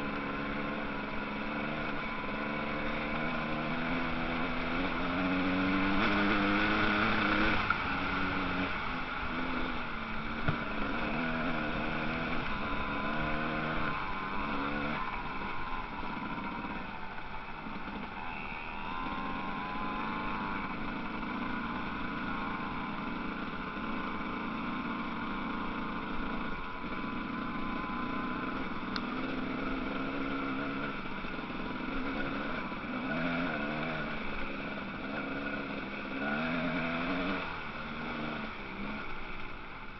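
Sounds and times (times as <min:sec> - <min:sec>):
motocross engines revving: 0:00.0 - 0:39.9.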